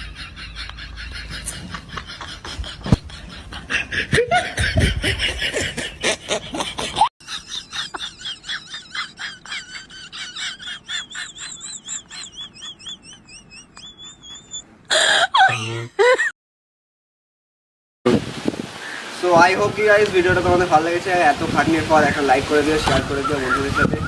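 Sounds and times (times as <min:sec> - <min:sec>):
high-pitched pulsing laugh: 0:00.0 - 0:16.4
laughter in bursts: 0:00.0 - 0:16.4.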